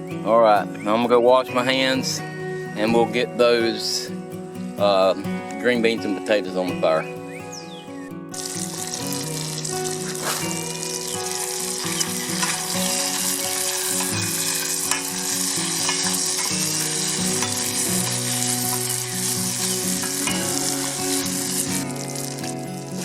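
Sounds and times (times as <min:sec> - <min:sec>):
bacon sizzling: 0:08.3 - 0:23.0.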